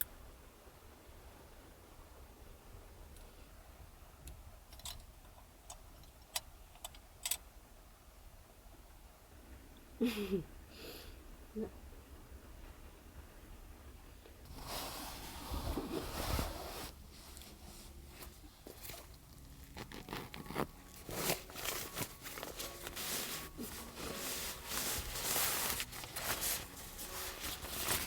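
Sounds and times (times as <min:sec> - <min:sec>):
material rustling and crinkling: 0:14.5 - 0:28.0.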